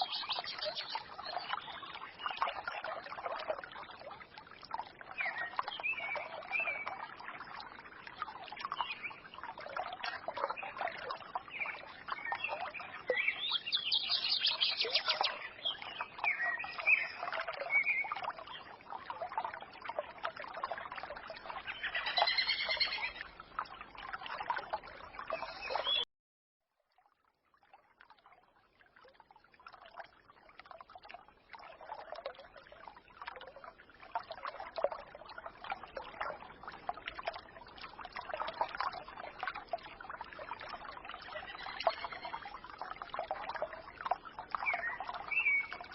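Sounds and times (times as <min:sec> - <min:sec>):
songbirds chirping: 0:00.0 - 0:03.6, 0:08.4 - 0:18.8, 0:21.2 - 0:23.4, 0:24.6 - 0:26.1, 0:44.2 - 0:45.9
stream babbling: 0:00.0 - 0:26.0, 0:28.0 - 0:45.9.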